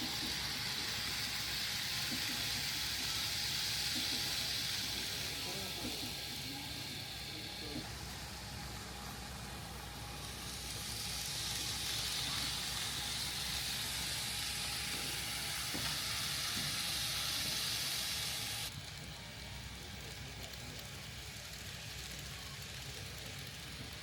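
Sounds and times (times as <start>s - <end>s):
model train wheels and motor hiss: 0.0s - 24.0s.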